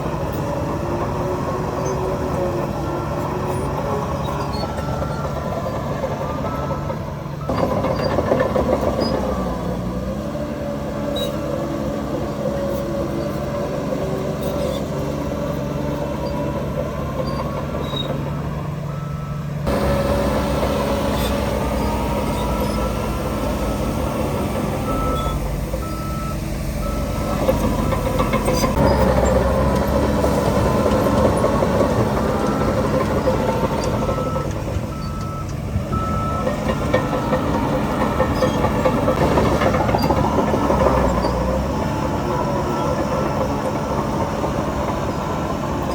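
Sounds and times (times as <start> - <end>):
heavy diesel engine running: 0.0 - 45.9
reversing alarm beeping: 2.8 - 9.4, 18.9 - 43.5.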